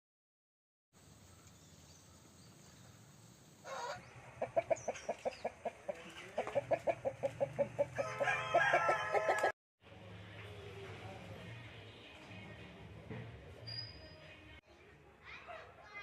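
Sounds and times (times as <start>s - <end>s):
chicken drawn-out call: 3.6s - 9.5s
chickens clucking: 3.7s - 9.5s.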